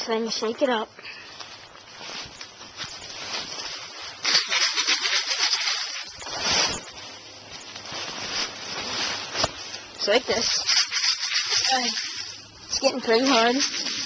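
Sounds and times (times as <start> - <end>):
bottle contents sloshing and rattling: 3.5 - 6.9, 10.4 - 14.0.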